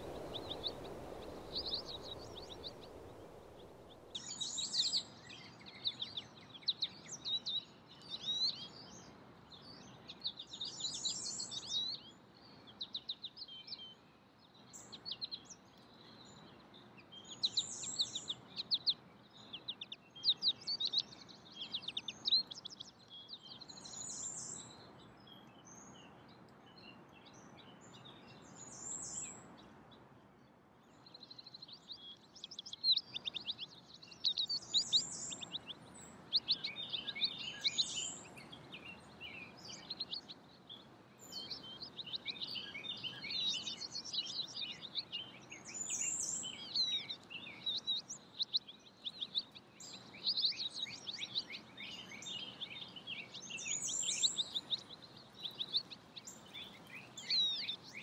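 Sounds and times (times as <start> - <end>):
background hiss: 0.0 - 7.2
small birds chirping: 0.0 - 58.0.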